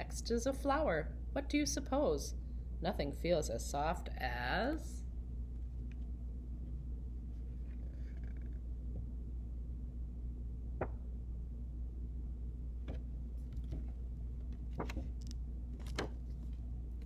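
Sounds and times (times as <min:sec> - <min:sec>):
steady low hum: 0:00.0 - 0:17.0
board book pages clicking: 0:13.5 - 0:16.6.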